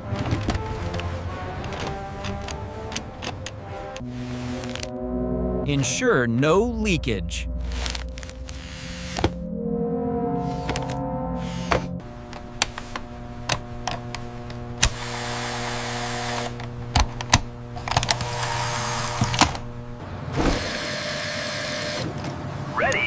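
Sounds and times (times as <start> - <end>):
equipment clicks and clunks: 0.0 - 4.9, 11.7 - 15.0, 16.3 - 18.5
steady low hum: 3.6 - 22.7.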